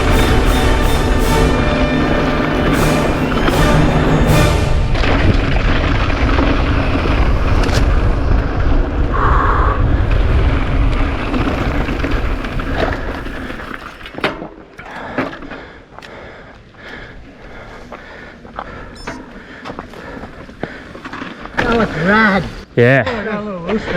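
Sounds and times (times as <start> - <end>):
wind buffeting microphone: 4.7 - 13.8
bike tyres rumbling on trail: 5.0 - 22.6
bike rattling: 9.8 - 15.6.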